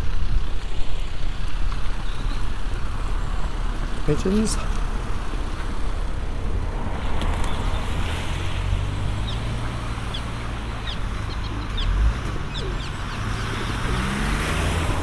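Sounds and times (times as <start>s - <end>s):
road traffic rumble: 0.0s - 15.0s
vehicle engine revving: 0.4s - 15.0s
bird chirps: 9.2s - 14.3s.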